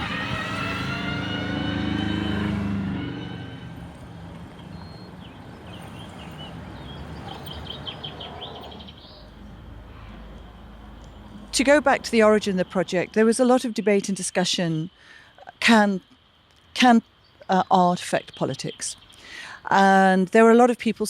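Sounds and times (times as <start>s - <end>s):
birds chirping: 0.0s - 10.2s, 16.8s - 19.6s
vehicle whine passing by: 0.0s - 12.0s
steady traffic noise: 0.0s - 21.0s.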